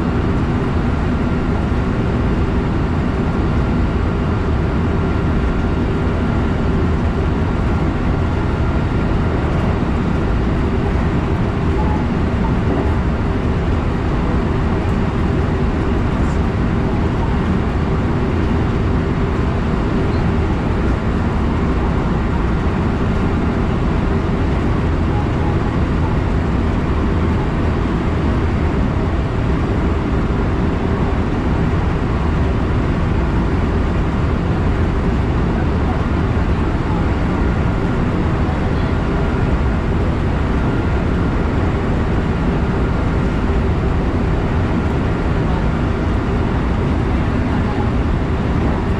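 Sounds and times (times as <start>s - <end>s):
train wheels rumbling on rail: 0.0s - 48.9s
faint steady hum: 42.1s - 47.6s.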